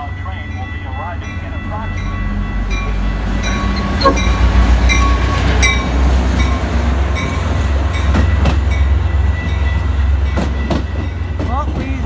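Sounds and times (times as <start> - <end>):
train rumbling: 0.0 - 12.0
wheels clacking on rails: 0.4 - 12.0
high ringing tones: 3.5 - 5.8.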